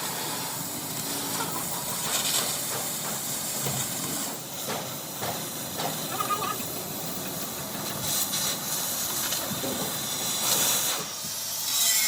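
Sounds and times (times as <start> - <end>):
hissing workshop noise: 0.0 - 12.0
sharp metallic knocks: 1.9 - 8.2.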